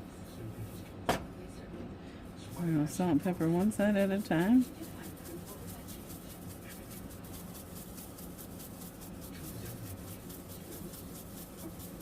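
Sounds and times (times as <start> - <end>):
seasoning shaken over chicken: 2.4 - 12.0.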